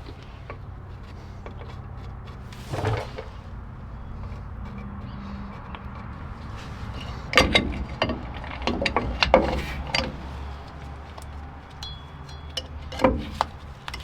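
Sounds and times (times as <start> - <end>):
metal tools clicking and knocking: 6.9 - 14.0.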